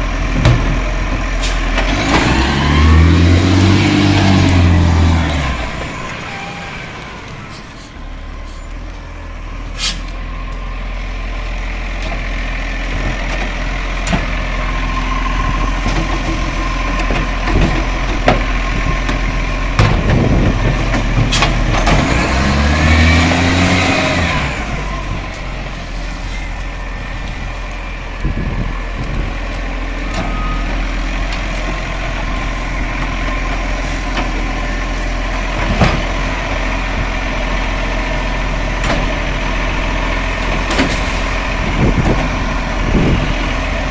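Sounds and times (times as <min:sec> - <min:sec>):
garbage truck engine hum: 0:00.0 - 0:43.9
engine revving: 0:01.5 - 0:08.0, 0:18.7 - 0:26.4.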